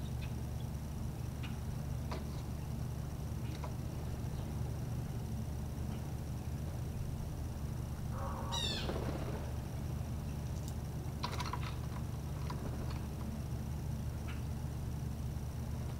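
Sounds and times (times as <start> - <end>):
steady low hum: 0.0 - 15.9
bird squeaky falling call: 8.2 - 9.1
bird chips: 8.2 - 9.6.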